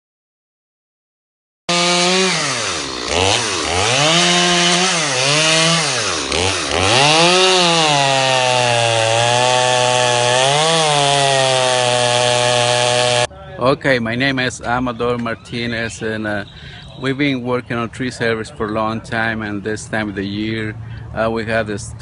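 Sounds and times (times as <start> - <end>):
chainsaw running hard: 1.7 - 13.3.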